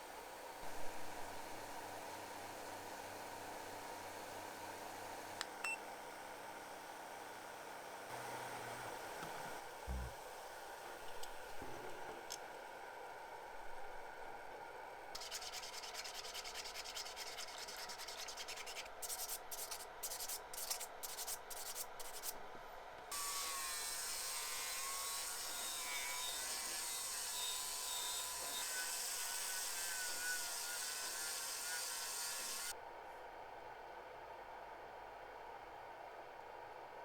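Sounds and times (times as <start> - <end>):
metal being sanded: 15.2 - 22.4, 23.1 - 32.7.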